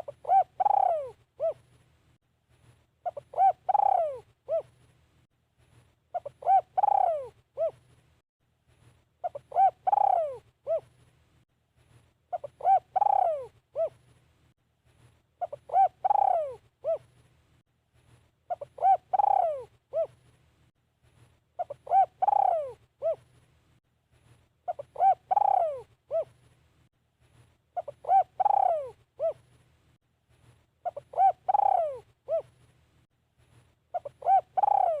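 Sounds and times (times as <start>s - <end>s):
dove cooing: 0.0s - 1.7s, 3.0s - 4.8s, 6.1s - 7.8s, 9.2s - 10.9s, 12.3s - 14.0s, 15.4s - 17.1s, 18.5s - 20.2s, 21.6s - 23.3s, 24.7s - 26.4s, 27.8s - 29.4s, 30.8s - 32.6s, 33.9s - 35.0s.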